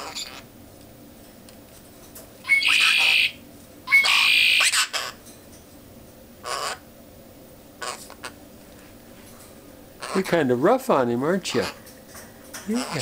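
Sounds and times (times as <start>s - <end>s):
parrot squawking: 0.0s - 0.5s, 2.4s - 5.2s, 6.4s - 6.9s, 7.8s - 8.4s, 10.0s - 10.5s, 11.4s - 11.8s, 12.7s - 13.0s.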